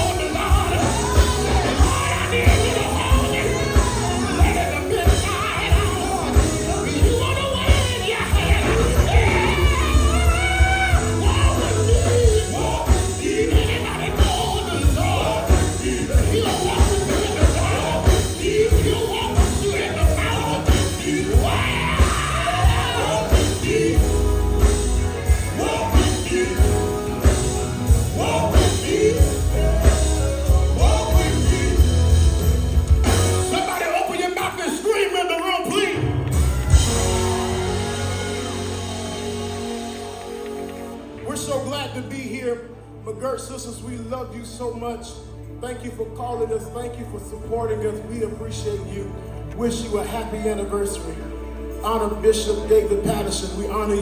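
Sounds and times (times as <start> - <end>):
lead singer singing: 0.0 - 32.5
gospel band playing: 0.0 - 54.0.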